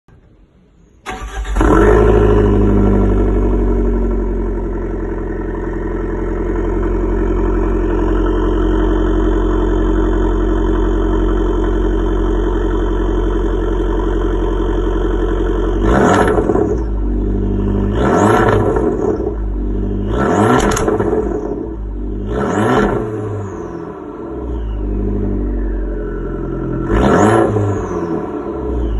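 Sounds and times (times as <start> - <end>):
car engine starting and idling: 0.1 - 28.9
engine revving blips: 15.7 - 28.9.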